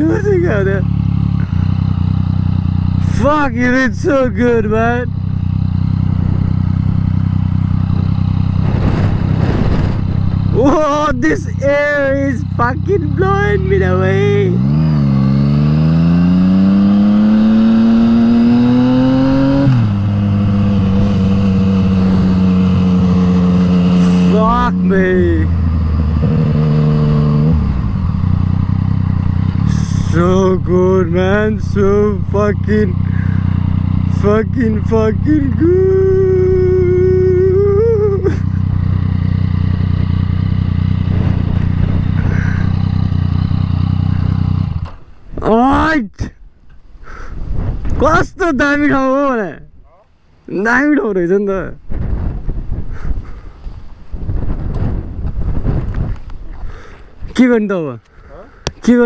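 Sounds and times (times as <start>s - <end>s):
motorcycle engine revving: 0.0s - 45.4s
wind rushing over microphone: 6.0s - 12.2s, 16.0s - 34.0s, 39.8s - 49.9s, 51.7s - 57.4s.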